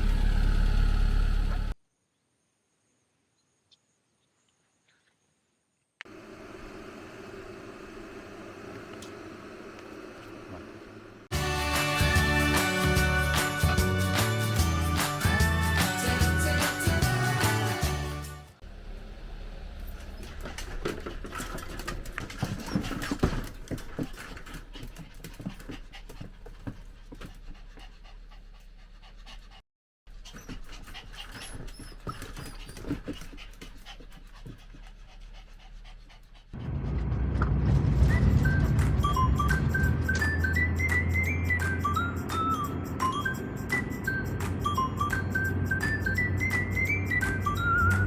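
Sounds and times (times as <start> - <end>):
background music: 11.3 - 18.6
dog panting: 20.2 - 36.8.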